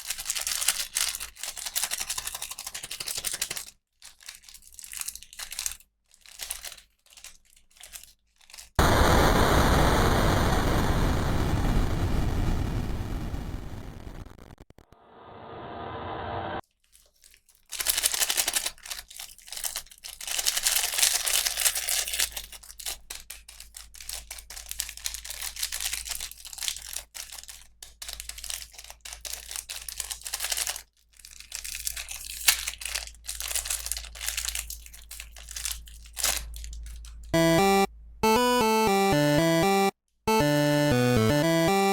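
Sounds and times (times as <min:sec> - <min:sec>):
plastic packaging crinkling and tearing: 0:00.0 - 0:08.8, 0:16.6 - 0:37.4.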